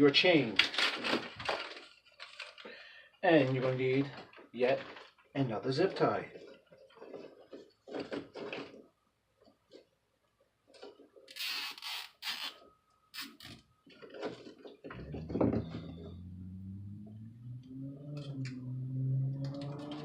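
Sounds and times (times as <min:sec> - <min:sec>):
zip tie ratcheting: 0:11.3 - 0:12.6
low multi-pitched hum: 0:14.9 - 0:20.0.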